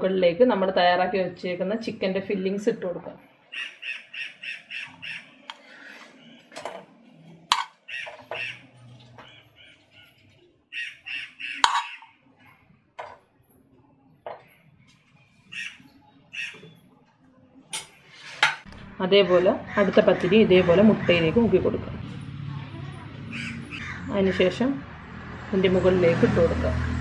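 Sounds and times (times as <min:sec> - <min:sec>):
bird calling repeated notes: 0:03.5 - 0:06.6, 0:07.7 - 0:12.2, 0:15.5 - 0:16.8
metal spoon clinking on pot: 0:07.5 - 0:07.8, 0:11.6 - 0:12.0.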